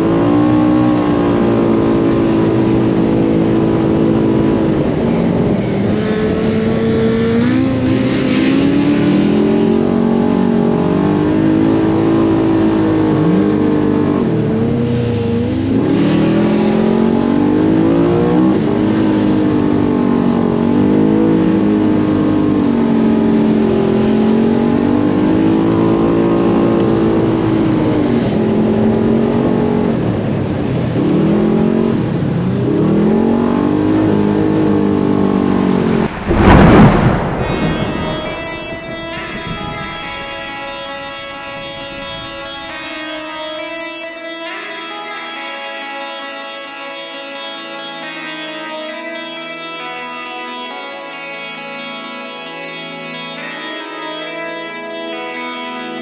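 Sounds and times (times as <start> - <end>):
utility vehicle engine revving: 0.0 - 43.1.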